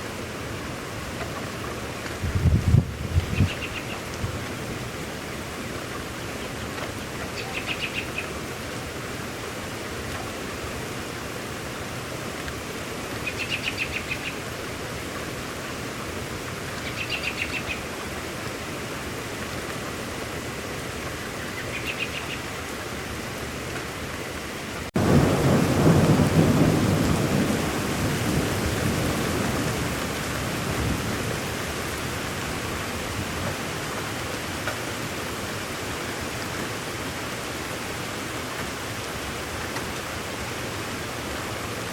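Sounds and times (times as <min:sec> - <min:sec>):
rain hiss: 0:00.0 - 0:41.9
thunder rumble: 0:02.2 - 0:03.8
bird trilled call: 0:03.2 - 0:04.0.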